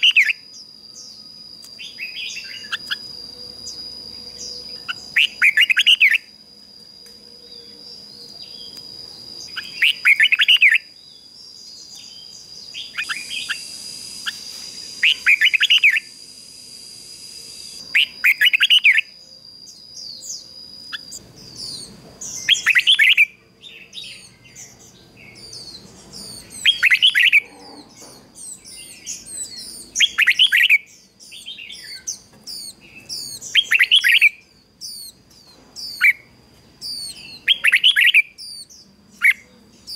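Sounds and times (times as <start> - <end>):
steady high-pitched whine: 0.0 - 39.9
bulbul warbling song: 11.8 - 23.4.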